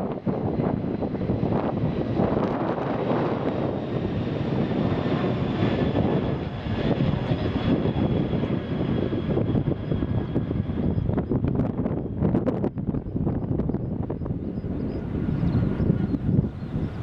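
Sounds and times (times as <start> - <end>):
jet engines rumbling: 0.0 - 17.0
wind buffeting microphone: 0.0 - 17.0.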